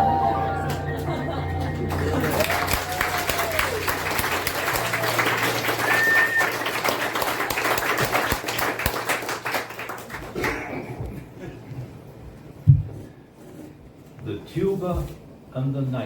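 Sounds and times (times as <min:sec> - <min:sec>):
audience clapping: 0:00.6 - 0:11.2.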